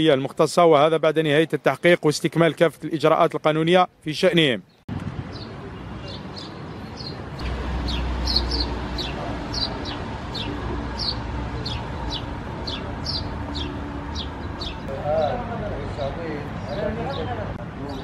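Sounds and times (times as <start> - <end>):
bird chirping: 4.7 - 15.5.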